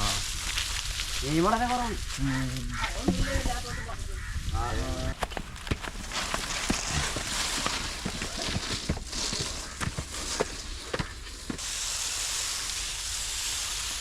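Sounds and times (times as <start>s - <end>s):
food sizzling in hot oil: 0.0s - 5.0s, 11.5s - 14.0s.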